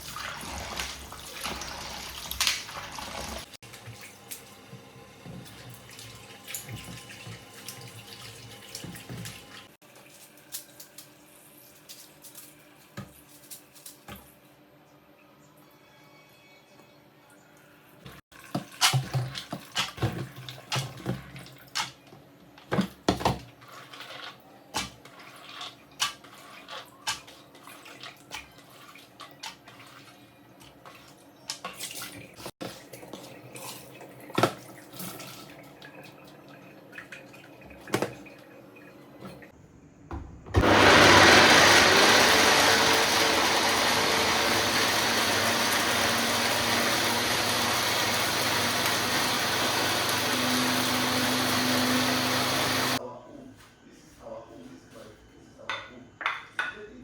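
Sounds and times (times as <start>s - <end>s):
tap water running: 0.0s - 10.8s, 18.3s - 21.7s, 40.6s - 53.0s.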